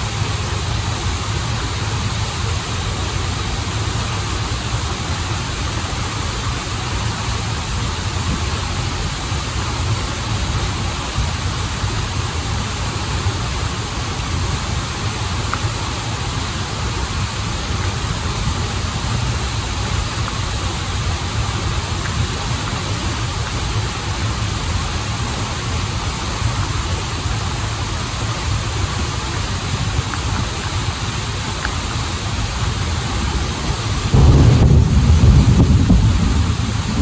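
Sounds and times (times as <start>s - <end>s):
waterfall and river rushing: 0.0s - 37.0s
sudden low rumble: 34.1s - 37.0s.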